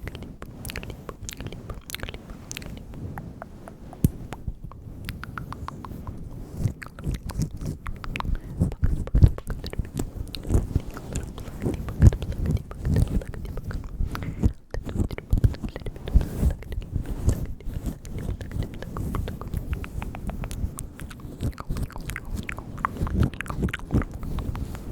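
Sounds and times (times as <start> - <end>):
wet mouth clicks and smacks: 0.0 - 24.9.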